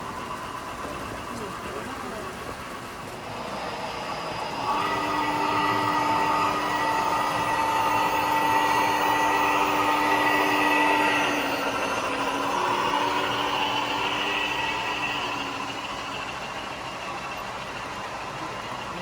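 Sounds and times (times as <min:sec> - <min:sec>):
model train whine: 0:00.0 - 0:19.0.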